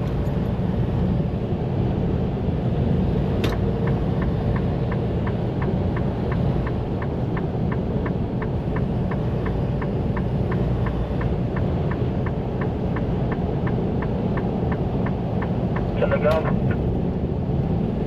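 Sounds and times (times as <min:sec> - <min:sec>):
truck engine and road rumble: 0:00.0 - 0:18.0
turn signal ticking: 0:03.4 - 0:17.8.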